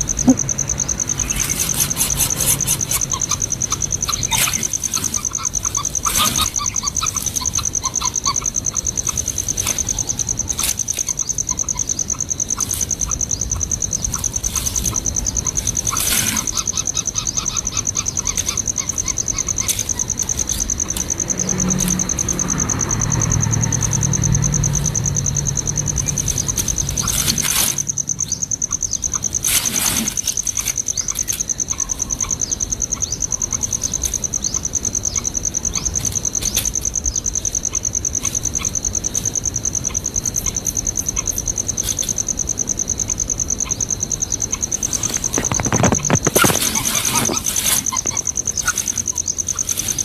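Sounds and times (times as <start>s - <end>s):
high-pitched insect trill: 0.0s - 50.0s
rustling bursts: 44.7s - 50.0s.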